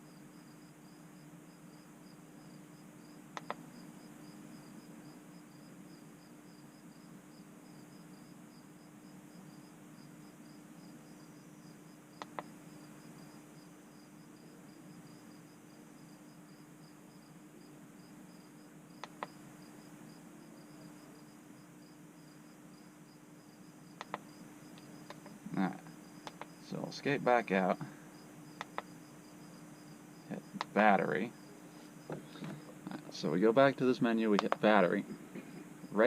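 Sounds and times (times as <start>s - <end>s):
cricket chirping: 0.0s - 36.0s
low steady hum: 0.0s - 36.0s
soft clicks: 3.4s - 3.6s, 12.2s - 12.5s, 19.0s - 19.4s, 24.0s - 25.3s, 26.2s - 26.6s, 28.6s - 28.9s, 34.4s - 34.7s.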